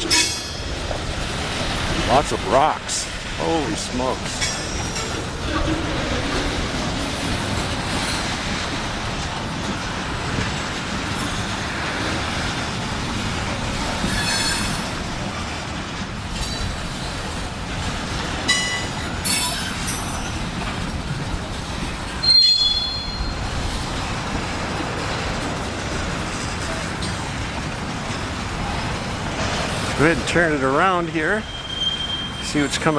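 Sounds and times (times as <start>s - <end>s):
train wheels rumbling on rail: 0.0s - 32.9s
sharp clack of wheels: 4.3s - 30.3s
high-pitched wheel squeals: 22.2s - 23.4s, 31.2s - 32.9s.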